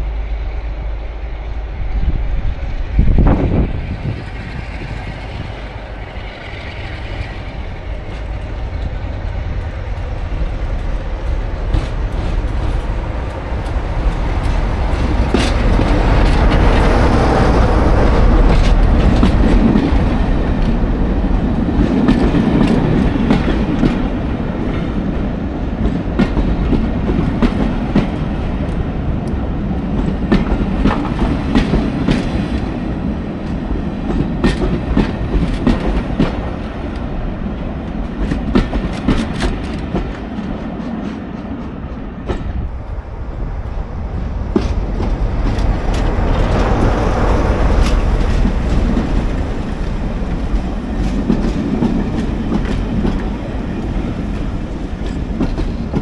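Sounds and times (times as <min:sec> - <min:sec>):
diesel train rumble: 0:00.0 - 0:56.0
wheels clicking over rail joints: 0:33.4 - 0:56.0.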